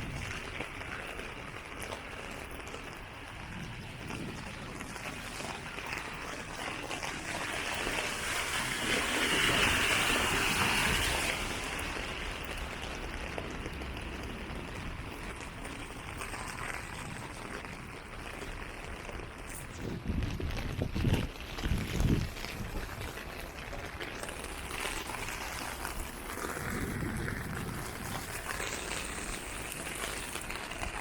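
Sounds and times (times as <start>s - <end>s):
rain on wet streets: 0.0s - 31.0s.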